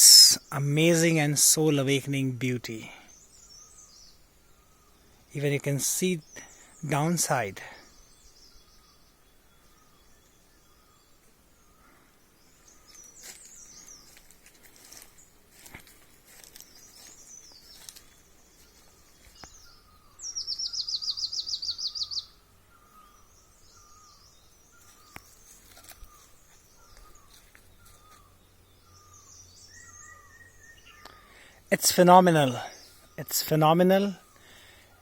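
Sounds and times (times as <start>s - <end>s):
high bird chirps: 16.4s - 35.0s
low short bird call: 19.4s - 28.3s
rapid bird trill: 19.6s - 35.0s.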